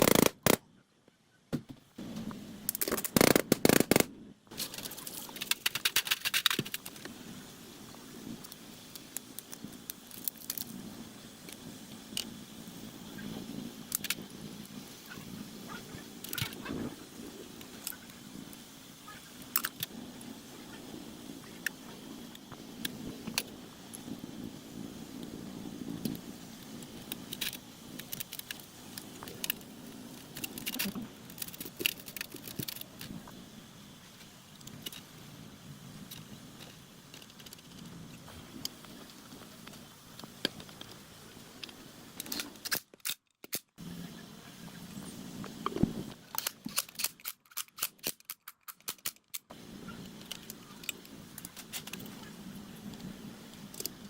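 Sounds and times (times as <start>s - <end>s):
small metal parts clinking: 46.2s - 49.5s.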